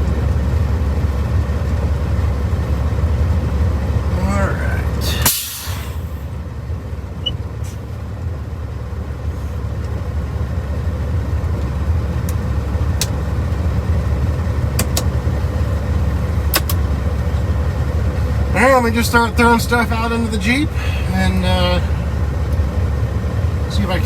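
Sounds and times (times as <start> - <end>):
truck diesel engine droning: 0.0 - 24.0
sharp clicks: 14.8 - 15.2, 16.5 - 16.8.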